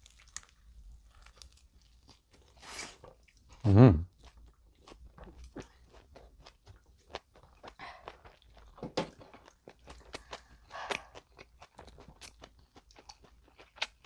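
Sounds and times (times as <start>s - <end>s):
person chewing bread: 0.0s - 14.0s.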